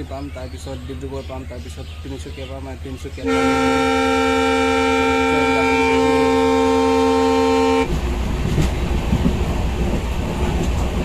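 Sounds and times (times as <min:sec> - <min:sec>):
moving train noise: 0:00.0 - 0:11.0
train horn blast: 0:03.2 - 0:07.9.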